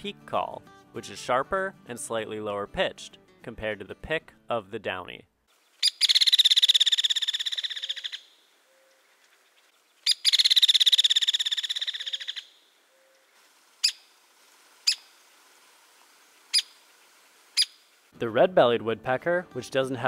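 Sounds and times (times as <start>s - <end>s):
woodpecker rattle calls: 5.7s - 14.1s, 14.9s - 15.1s, 16.5s - 16.8s, 17.6s - 17.9s.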